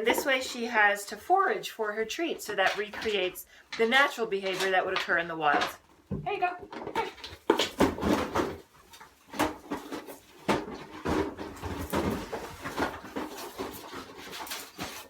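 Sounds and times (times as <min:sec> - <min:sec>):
cardboard box rustling and scraping: 0:09.4 - 0:15.0.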